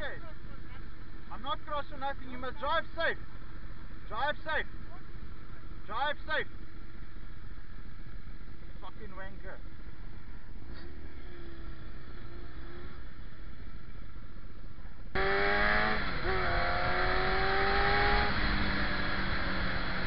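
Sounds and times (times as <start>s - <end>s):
motorcycle engine accelerating: 15.1s - 20.0s.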